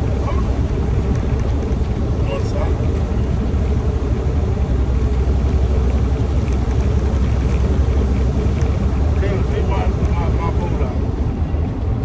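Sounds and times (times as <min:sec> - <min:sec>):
truck engine and tyres drone: 0:00.0 - 0:12.0.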